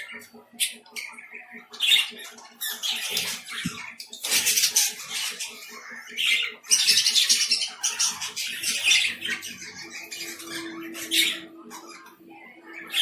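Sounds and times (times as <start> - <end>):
lovebirds squawking: 0.0 - 13.0.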